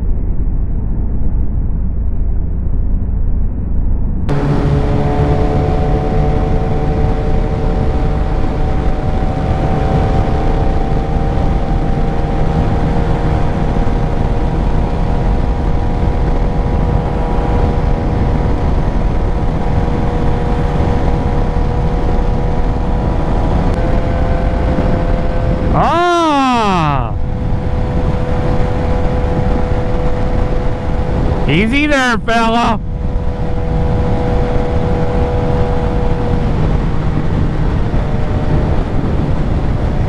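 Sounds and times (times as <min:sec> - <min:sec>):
wind noise on microphone: 0:32.8 - 0:40.0.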